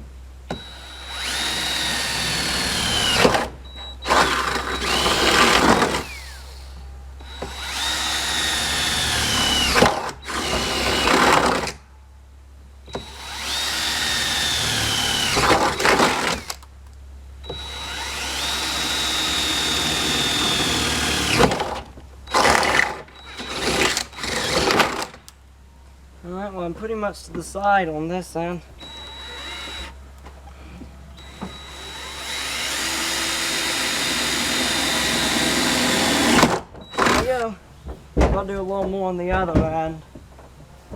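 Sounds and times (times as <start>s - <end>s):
power tool cutting sheet metal: 31.2s - 37.5s.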